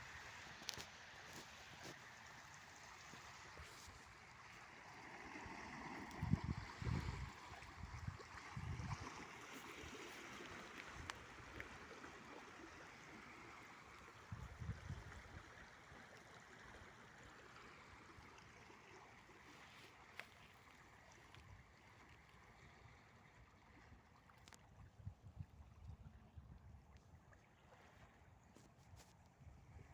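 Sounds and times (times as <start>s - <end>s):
waves splashing against riverbank: 0.0s - 14.4s.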